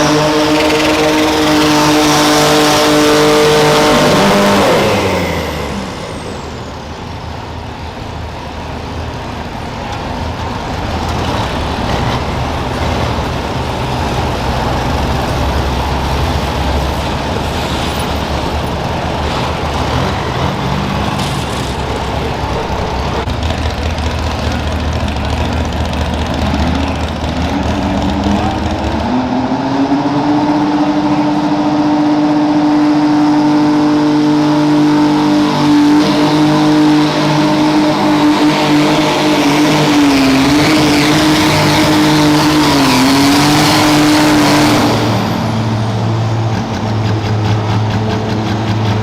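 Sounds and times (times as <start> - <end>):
diesel tractor engine revving: 0.0 - 49.0.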